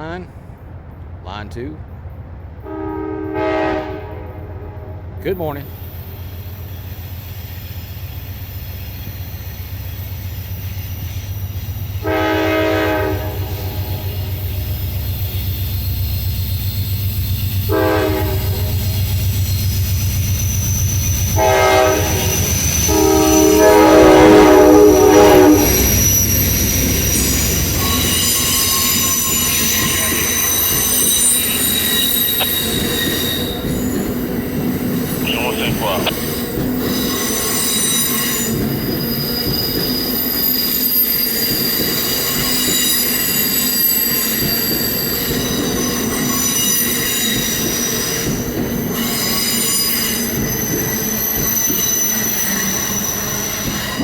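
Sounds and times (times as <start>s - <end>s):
locomotive horn blasts: 2.6s - 5.2s, 12.0s - 14.4s, 17.7s - 18.8s, 21.4s - 26.0s
high-pitched wheel squeal: 18.2s - 34.2s.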